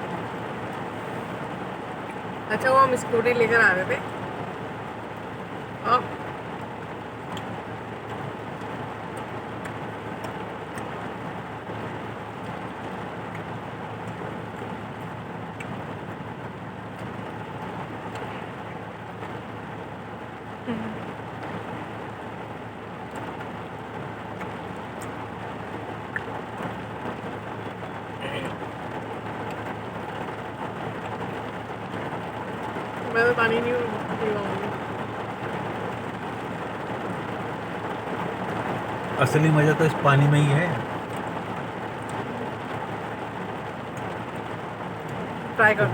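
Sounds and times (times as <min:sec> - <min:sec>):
heavy rain: 0:00.0 - 0:45.9
drops ticking on a surface: 0:11.8 - 0:15.9
heavy rain hissing: 0:24.8 - 0:45.9.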